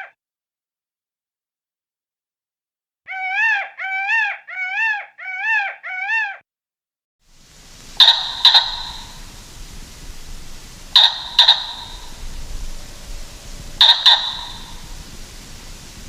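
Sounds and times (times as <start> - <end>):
sharp clicks: 7.5 - 16.0
animal whining call: 7.8 - 16.0.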